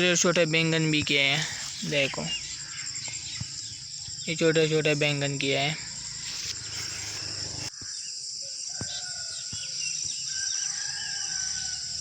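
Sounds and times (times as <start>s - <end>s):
crickets and insects trilling: 0.0s - 12.0s
small birds chirping: 0.5s - 11.8s
distant rooster crowing: 7.2s - 12.0s.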